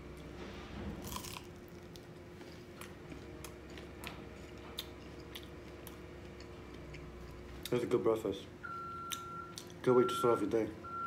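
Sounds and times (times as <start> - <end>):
person biting crunchy fry: 1.0 - 3.9
person chewing: 1.0 - 7.8.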